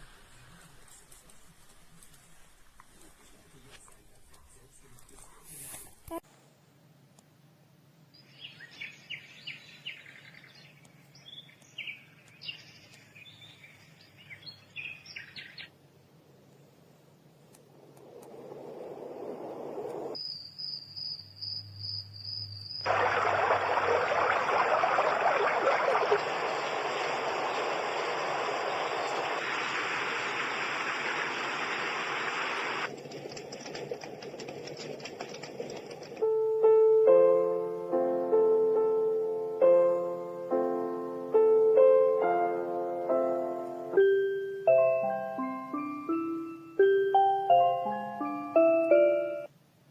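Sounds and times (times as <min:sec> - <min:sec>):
recorded birdsong chirps and trills: 0:08.1 - 0:15.8, 0:20.1 - 0:32.9
faint steady hum: 0:15.7 - 0:20.2, 0:21.3 - 0:32.9
steady rushing white noise: 0:15.8 - 0:20.2, 0:22.9 - 0:33.1
crackling of small clicks: 0:32.9 - 0:36.3.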